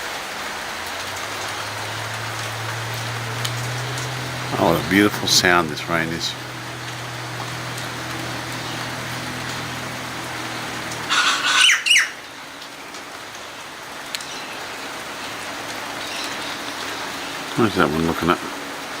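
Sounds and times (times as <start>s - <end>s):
steady rain falling: 0.0s - 19.0s
cockatoo squawking: 11.0s - 12.2s.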